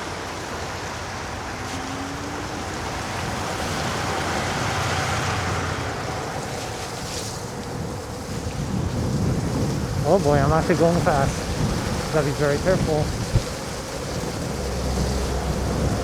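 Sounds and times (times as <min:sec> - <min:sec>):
tyre spray on wet road: 0:00.0 - 0:16.0
wind over microphone: 0:01.3 - 0:16.0
faint steady whine: 0:09.9 - 0:14.3.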